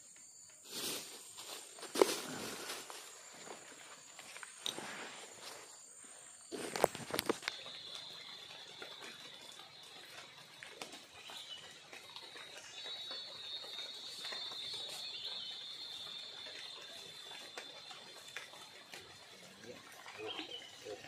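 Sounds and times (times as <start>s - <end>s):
light rain on river: 7.3s - 21.0s.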